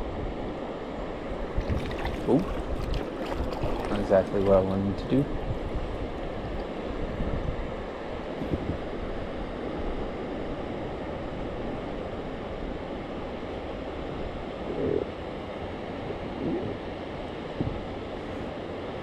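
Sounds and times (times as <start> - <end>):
wind buffeting microphone: 1.4 - 9.3, 17.5 - 18.0.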